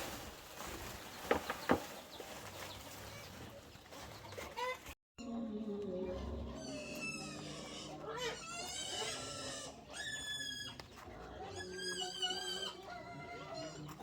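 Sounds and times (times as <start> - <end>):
pigs squealing: 6.5 - 14.0.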